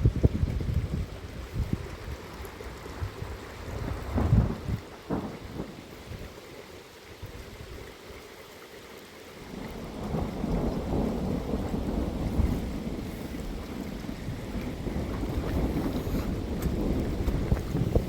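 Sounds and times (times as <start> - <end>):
steady heavy rain: 0.0 - 18.0
rolling thunder: 2.9 - 6.3, 9.5 - 18.0.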